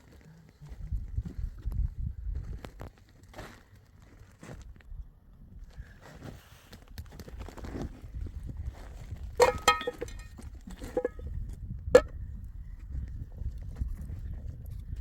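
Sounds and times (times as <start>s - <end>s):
sharp clinks and knocks: 9.4s - 11.3s.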